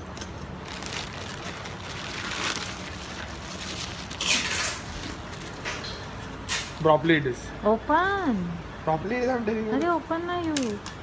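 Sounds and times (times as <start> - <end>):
package wrapping rustling and tearing: 0.3 - 5.7.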